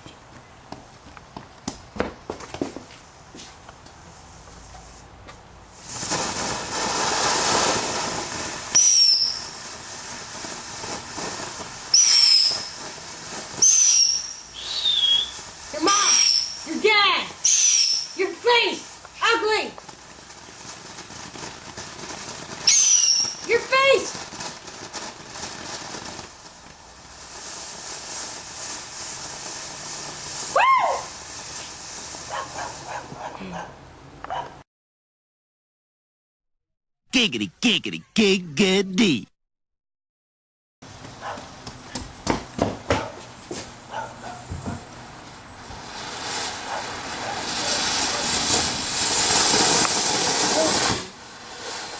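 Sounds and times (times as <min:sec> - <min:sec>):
firework hissing and spraying: 0:00.2 - 0:33.3, 0:40.8 - 0:51.9
shrill firework whistles: 0:05.8 - 0:33.1, 0:45.6 - 0:51.9.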